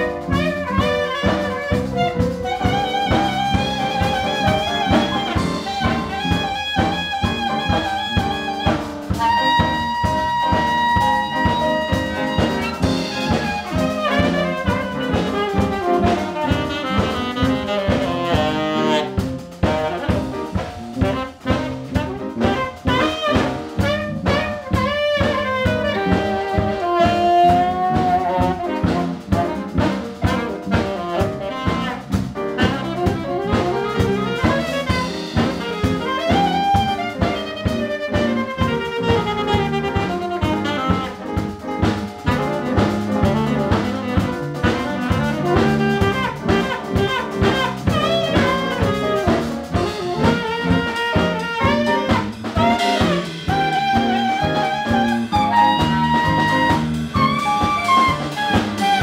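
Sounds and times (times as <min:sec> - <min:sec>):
bass: 0:00.0 - 0:59.0
drum kit: 0:00.0 - 0:59.0
piano: 0:00.0 - 0:59.0
saxophone melody: 0:00.0 - 0:59.0.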